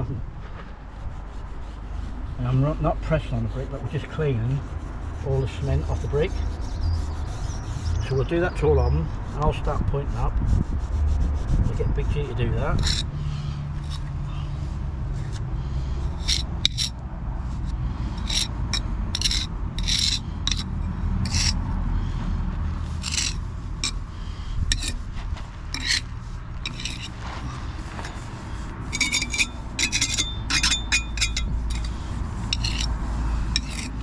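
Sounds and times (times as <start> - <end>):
scraping on bricks: 12.7 - 34.0.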